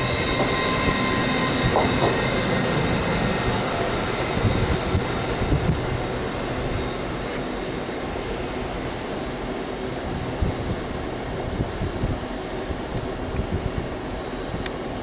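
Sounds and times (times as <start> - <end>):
train running gear: 0.0 - 15.0.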